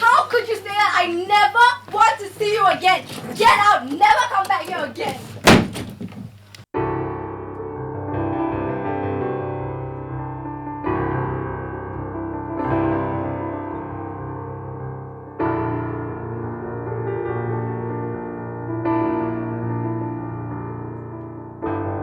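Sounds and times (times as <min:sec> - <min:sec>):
slow piano chords: 0:06.8 - 0:22.0.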